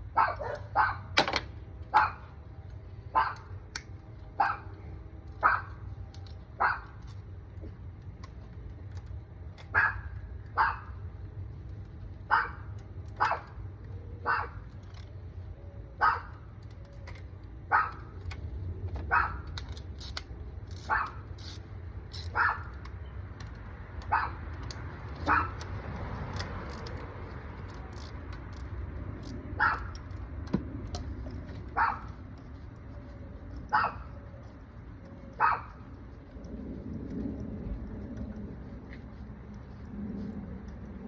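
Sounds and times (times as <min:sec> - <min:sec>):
low steady rumble: 0:00.0 - 0:41.0
dog barking: 0:00.2 - 0:01.1, 0:02.0 - 0:02.2, 0:03.2 - 0:03.5, 0:04.4 - 0:04.7, 0:05.4 - 0:05.7, 0:06.6 - 0:06.9, 0:09.8 - 0:10.9, 0:12.3 - 0:12.6, 0:14.2 - 0:14.6, 0:16.0 - 0:16.4, 0:17.7 - 0:18.0, 0:19.1 - 0:19.4, 0:22.4 - 0:22.7, 0:24.1 - 0:24.4, 0:25.3 - 0:25.6, 0:29.6 - 0:29.9, 0:31.8 - 0:32.1, 0:33.7 - 0:34.1, 0:35.4 - 0:35.7.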